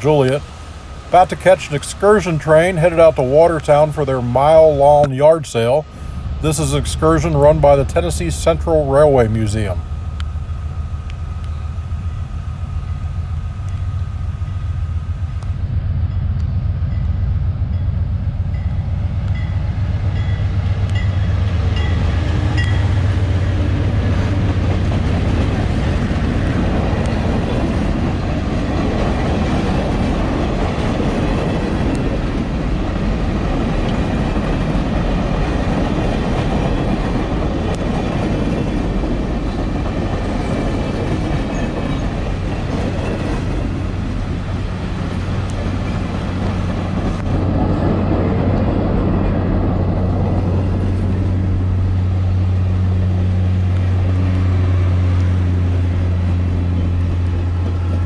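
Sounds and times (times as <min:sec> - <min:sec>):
steady tone: 0:00.0 - 0:24.8
rail and wheel noise: 0:00.0 - 0:58.0
train low hum: 0:00.0 - 0:58.0.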